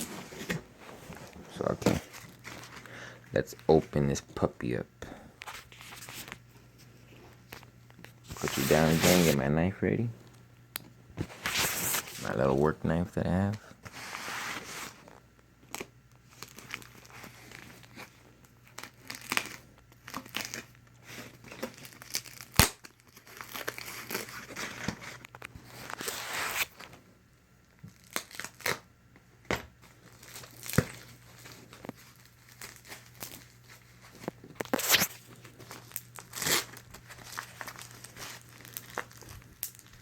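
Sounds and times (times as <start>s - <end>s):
wrapping crinkling and tearing: 0.0s - 9.4s, 13.5s - 27.0s, 27.6s - 28.9s, 29.8s - 40.0s
knife cutting packaging: 18.8s - 26.9s, 34.6s - 39.7s.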